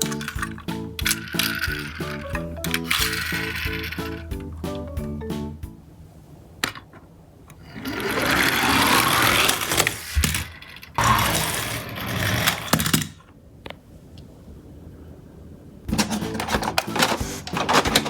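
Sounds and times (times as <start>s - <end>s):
toy car mechanical whirring: 7.8s - 13.1s.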